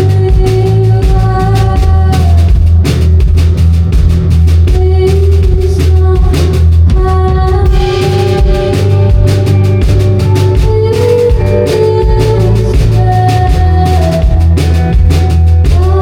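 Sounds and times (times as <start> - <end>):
heavy bass: 0.0 - 16.0
live band playing loud music: 0.0 - 16.0
held pitched notes: 7.6 - 16.0.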